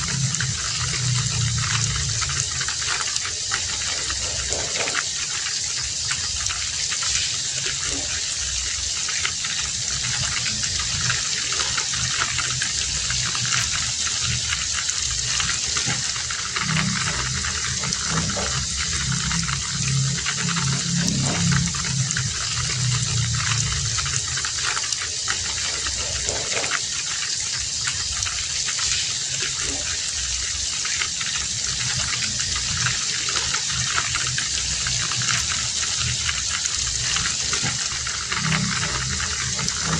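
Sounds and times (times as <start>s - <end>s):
low hum: 0.0s - 5.0s, 9.6s - 26.8s
heavy rain: 0.0s - 39.9s.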